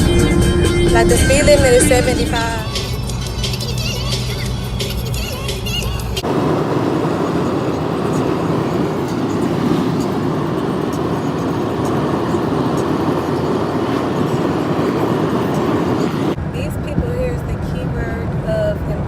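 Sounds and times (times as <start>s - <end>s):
road and wind noise in car: 0.0s - 19.0s.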